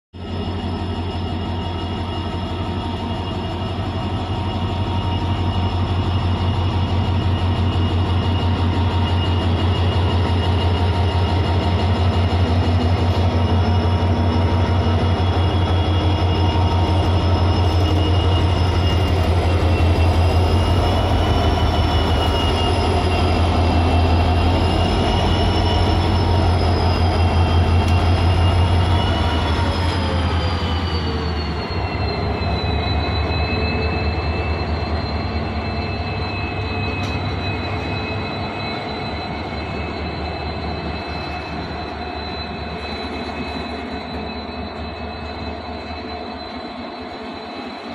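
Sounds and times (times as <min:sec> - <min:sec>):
locomotive diesel engine beat: 0:03.6 - 0:46.0.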